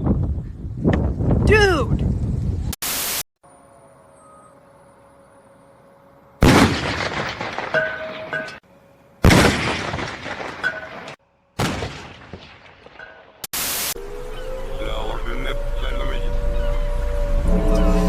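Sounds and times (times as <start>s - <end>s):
loud bangs: 9.2s - 13.5s.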